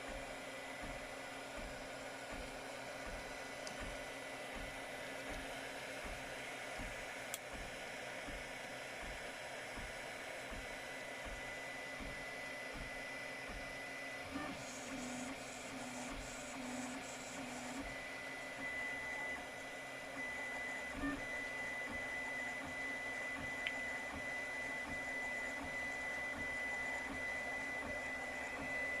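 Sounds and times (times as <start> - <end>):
three d printer whirring: 0.0 - 29.0.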